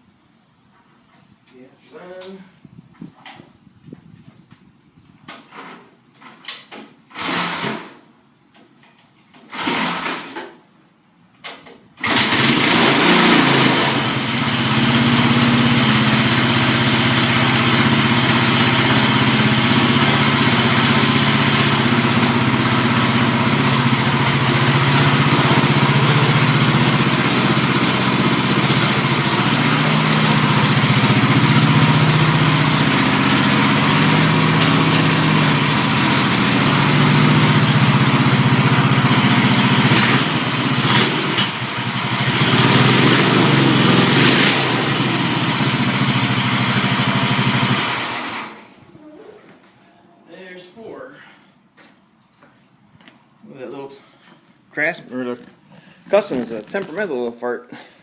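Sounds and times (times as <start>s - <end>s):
garden tractor engine starting: 7.1s - 8.0s, 9.4s - 10.6s, 12.0s - 48.8s.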